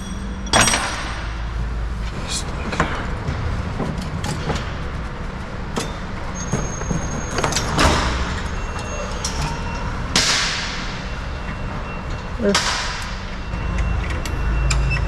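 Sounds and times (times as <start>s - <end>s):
knocks and clanks of metal hardware: 0.0s - 1.6s, 2.7s - 4.9s, 5.7s - 14.8s
steady low rumble: 0.0s - 6.4s.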